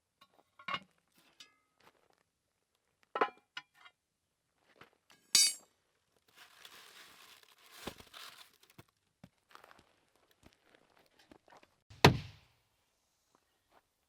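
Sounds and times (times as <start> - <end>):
bright clink of hard objects: 5.4 - 5.6.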